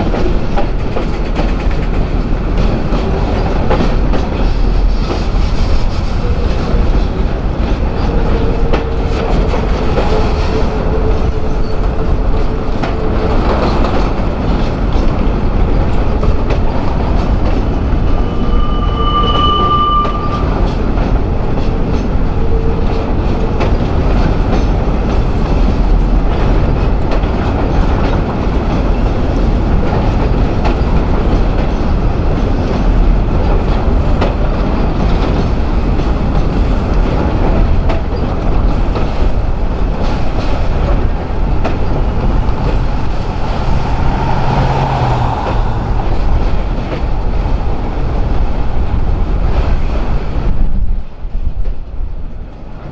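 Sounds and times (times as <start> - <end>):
train wheels clicking over rail joints: 0.0 - 18.1, 20.7 - 52.8
high-pitched wheel squeal: 17.6 - 20.9, 42.0 - 48.0.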